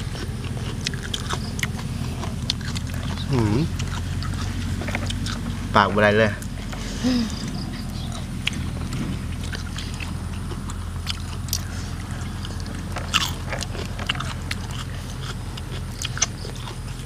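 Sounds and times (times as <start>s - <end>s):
people chewing with wet smacking: 0.0s - 17.0s
steady low hum: 0.0s - 17.0s.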